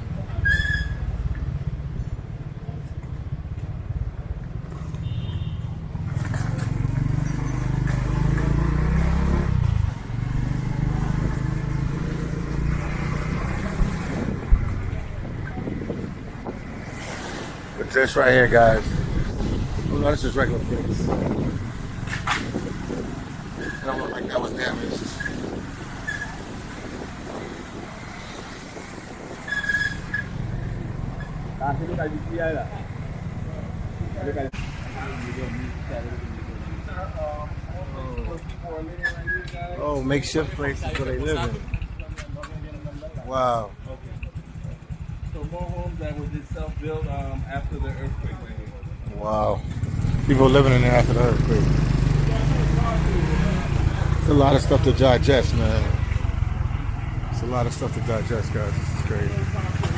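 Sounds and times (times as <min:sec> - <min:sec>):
vehicle engine and road noise: 0:00.0 - 0:59.9.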